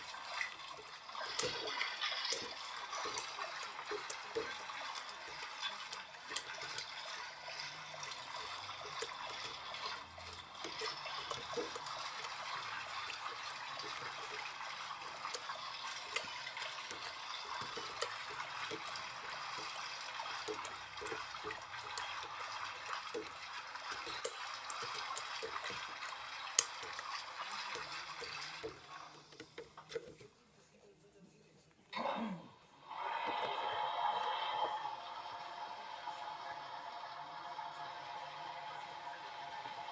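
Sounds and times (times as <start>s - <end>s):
washing machine water running: 0.0s - 30.3s, 32.8s - 39.9s.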